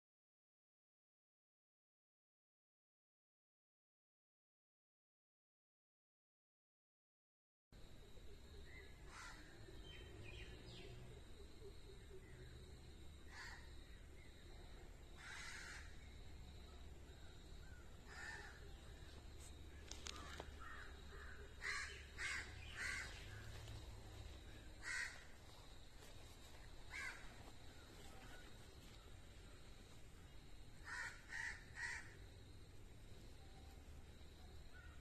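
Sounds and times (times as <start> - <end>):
short bird calls: 19.7 - 23.5.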